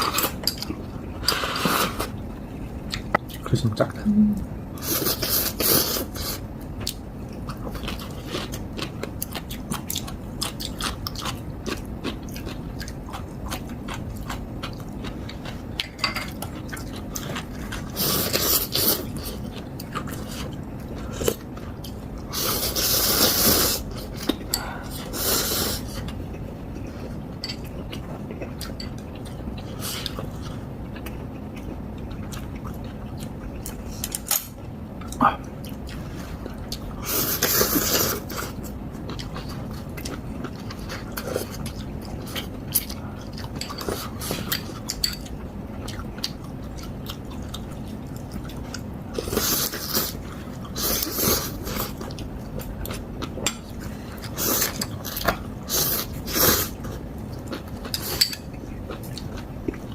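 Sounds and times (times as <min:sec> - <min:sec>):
chewing with wet clicks: 0:06.6 - 0:22.2, 0:26.0 - 0:37.0, 0:38.4 - 0:49.4, 0:51.7 - 0:55.5, 0:56.8 - 0:59.9.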